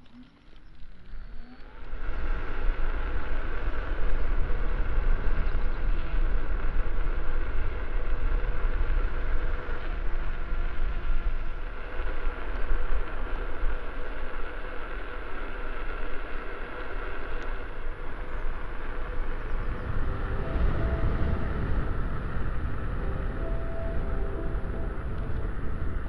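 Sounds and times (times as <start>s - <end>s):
electric unicycle rolling noise: 0.0s - 26.0s
wind rumble on microphone: 0.0s - 26.0s
steady tones: 19.5s - 26.0s.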